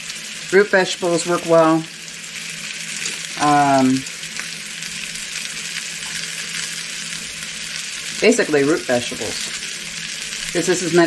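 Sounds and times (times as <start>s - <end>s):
meat sizzling in a pan: 0.0s - 11.0s
person speaking: 3.4s - 4.0s, 8.2s - 9.5s, 10.6s - 11.0s.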